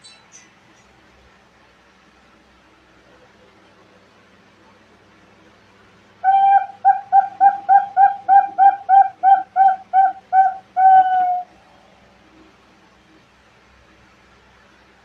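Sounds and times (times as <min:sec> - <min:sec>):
dove cooing: 0:06.2 - 0:11.6.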